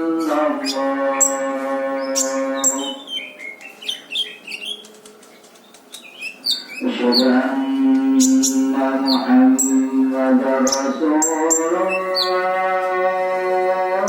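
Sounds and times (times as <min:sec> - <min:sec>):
high quick bird chirps: 0:02.7 - 0:07.3.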